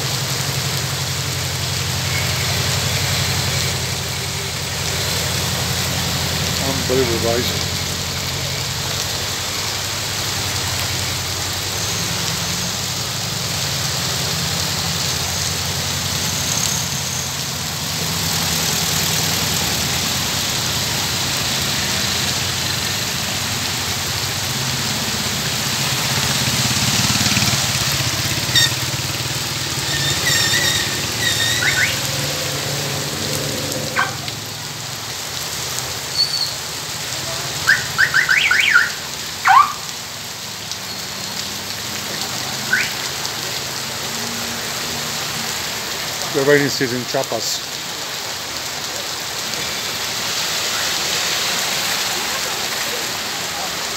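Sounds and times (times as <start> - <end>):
rain falling on street: 0.0 - 53.9
short high squeaks: 28.4 - 28.8, 29.8 - 32.1, 36.1 - 36.6.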